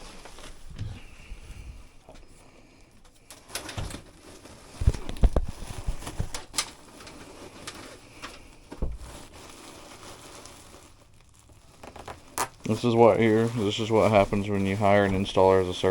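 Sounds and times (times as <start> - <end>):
knocks and clunks of ductwork: 0.0 - 9.5.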